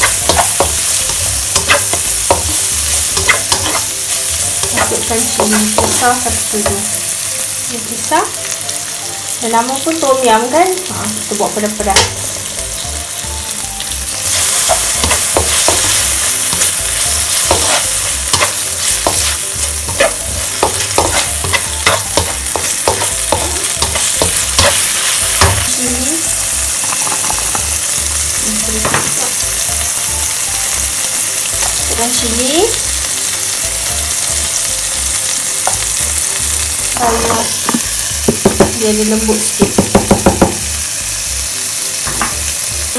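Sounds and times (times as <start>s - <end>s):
spatula scraping a wok: 0.0s - 6.8s, 14.3s - 25.8s
food sizzling in hot oil: 0.0s - 42.9s.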